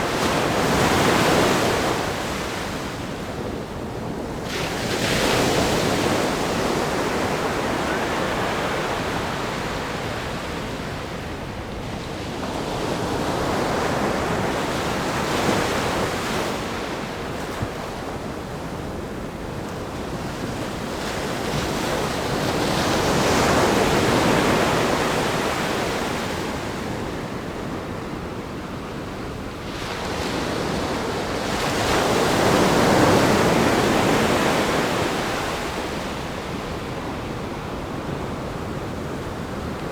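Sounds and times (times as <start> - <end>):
ocean surf breaking on rocks: 4.7 - 10.3.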